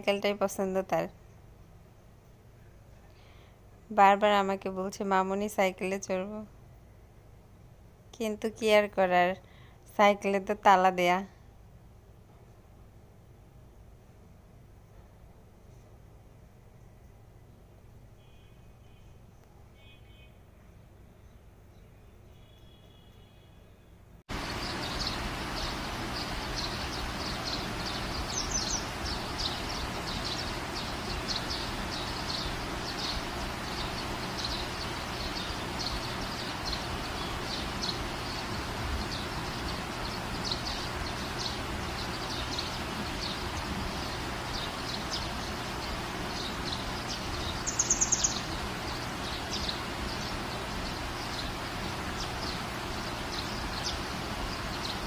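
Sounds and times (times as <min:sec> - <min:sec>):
steady background hum: 0:00.0 - 0:55.0
small birds chirping: 0:21.1 - 0:55.0.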